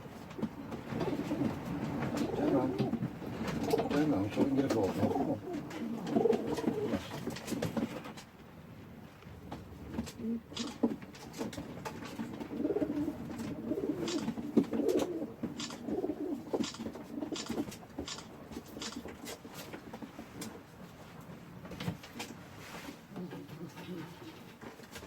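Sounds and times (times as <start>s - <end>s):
pigeons cooing: 0.5s - 7.3s, 12.4s - 17.7s.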